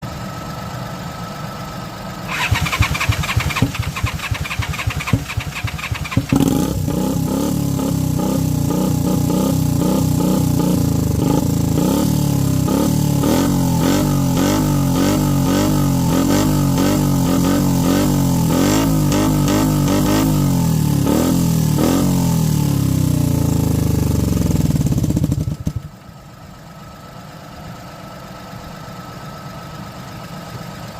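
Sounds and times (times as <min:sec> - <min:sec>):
motorcycle engine revving: 0:02.2 - 0:25.9
starter motor cranking: 0:02.3 - 0:06.8.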